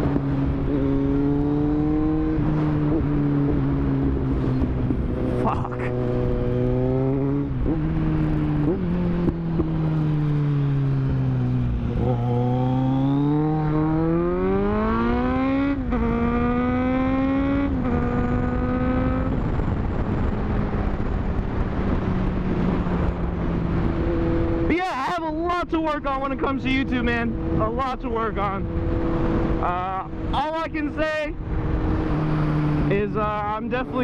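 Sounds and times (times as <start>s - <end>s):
wind noise: 0.0s - 24.7s
motorcycle engine revving: 0.0s - 34.0s.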